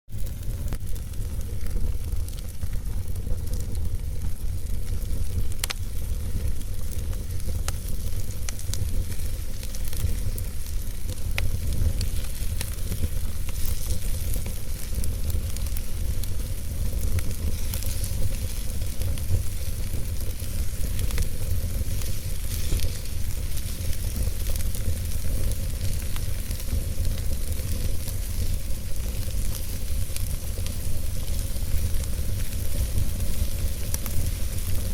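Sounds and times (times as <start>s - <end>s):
low rumble of fire: 0.1s - 34.9s
wood fire crackling and popping: 0.1s - 34.9s.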